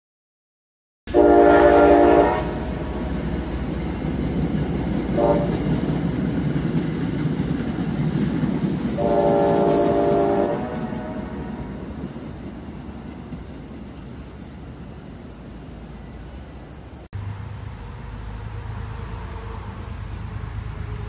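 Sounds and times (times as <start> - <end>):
train horn blasts: 1.1 - 3.1, 5.1 - 5.8, 9.0 - 11.7
train rumbling past: 1.1 - 21.0.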